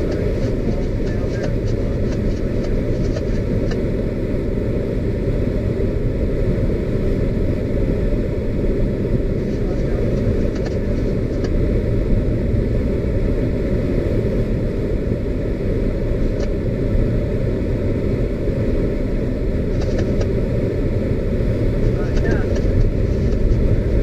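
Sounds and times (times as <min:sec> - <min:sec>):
vehicle rumble: 0:00.0 - 0:24.0.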